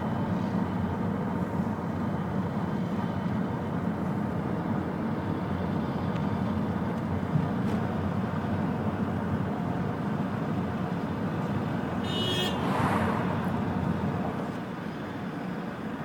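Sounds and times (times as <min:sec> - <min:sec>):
short high horn beep: 0:12.0 - 0:12.6.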